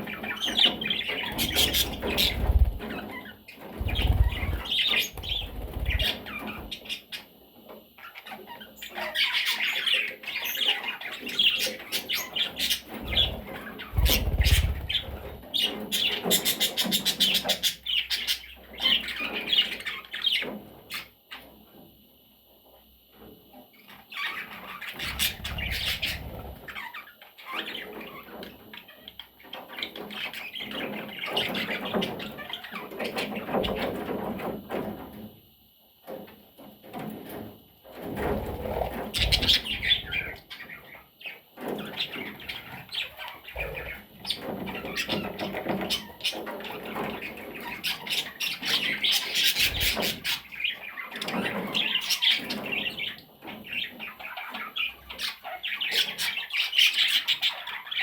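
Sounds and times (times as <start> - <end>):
budgerigar chattering and squawking: 24.2 - 27.8.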